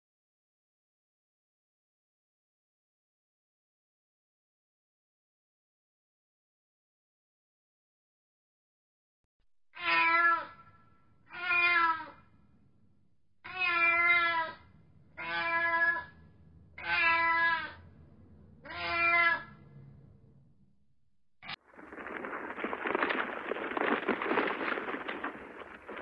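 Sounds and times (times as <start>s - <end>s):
cat meowing: 9.8s - 10.7s, 11.3s - 12.2s, 13.4s - 14.6s, 15.2s - 16.2s, 16.8s - 17.8s, 18.6s - 19.6s.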